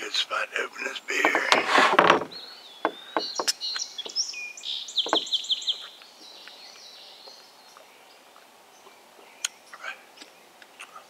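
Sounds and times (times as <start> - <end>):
songbirds singing: 0.0 - 11.0
sharp knocks and clicks: 1.2 - 3.6, 5.0 - 5.3.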